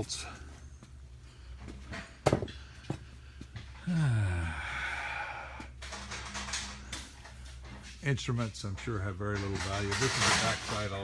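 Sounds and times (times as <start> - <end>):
man sighing: 3.8 - 5.7.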